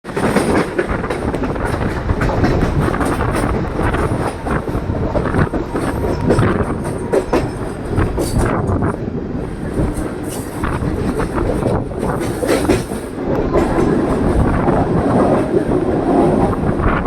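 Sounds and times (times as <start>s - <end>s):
train wheels rumbling on rails: 0.0s - 17.0s
wheels clicking over track joints: 0.1s - 8.8s, 9.8s - 14.5s.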